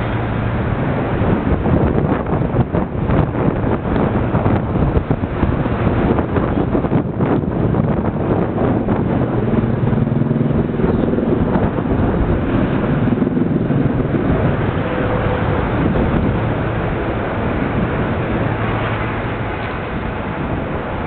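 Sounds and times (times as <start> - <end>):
low motor hum: 0.0 - 21.0
train wheels rumbling on track: 0.0 - 21.0.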